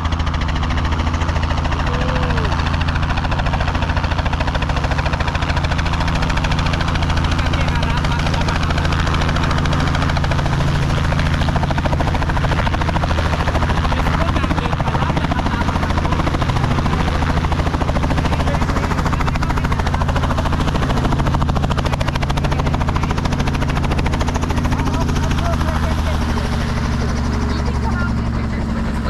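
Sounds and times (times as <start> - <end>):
helicopter engine drone: 0.0 - 29.0
helicopter rotor blade chop: 0.0 - 29.0.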